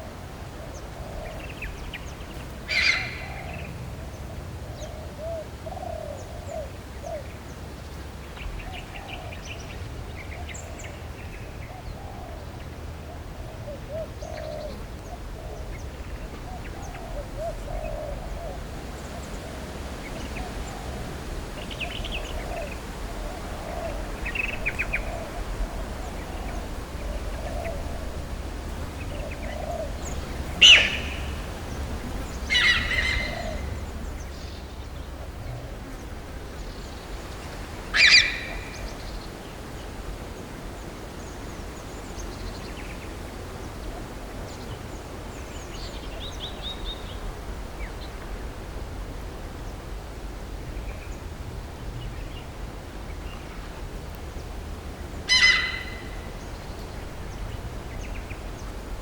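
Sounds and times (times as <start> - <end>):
loud sharp bird calls: 0.7 - 3.7, 13.9 - 35.2, 37.1 - 39.6, 55.0 - 58.9
steady low rumble: 14.8 - 38.0.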